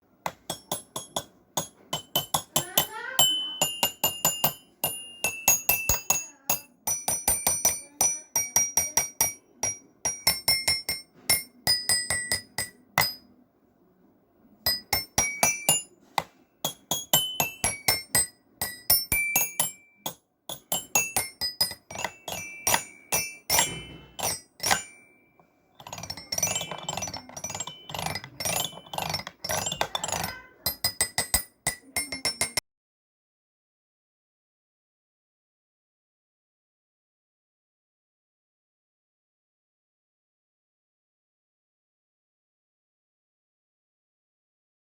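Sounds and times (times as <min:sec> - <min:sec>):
bell-like mallet instrument tune: 0:02.0 - 0:11.0, 0:16.7 - 0:32.6.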